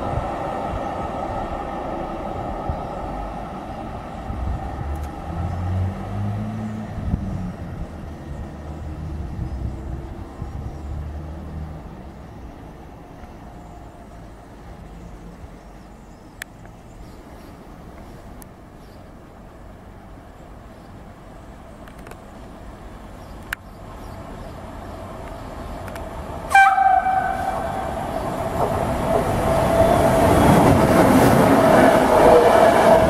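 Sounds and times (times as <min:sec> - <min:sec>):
electric train rumbling past: 0:00.0 - 0:15.9, 0:23.8 - 0:33.0.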